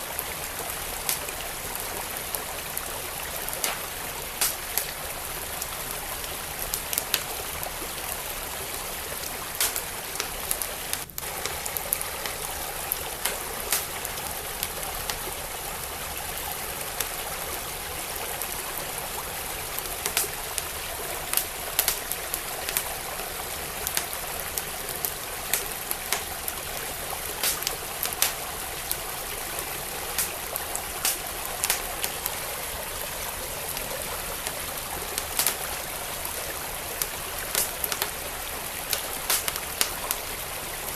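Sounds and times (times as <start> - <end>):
stream flowing: 0.0 - 40.9
wood fire crackling and popping: 0.0 - 40.9.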